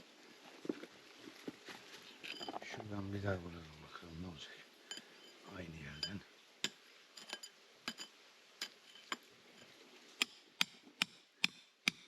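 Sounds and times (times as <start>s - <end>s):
metal tool striking rock: 4.9s - 9.3s, 10.2s - 12.0s.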